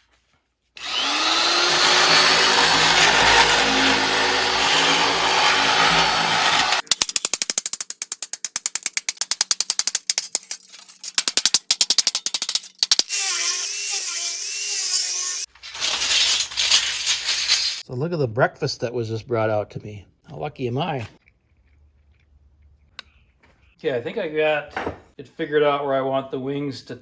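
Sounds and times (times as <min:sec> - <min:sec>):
electric shears cutting sheet metal: 0:00.8 - 0:07.7, 0:11.2 - 0:17.8
rapid clicks: 0:06.8 - 0:13.1.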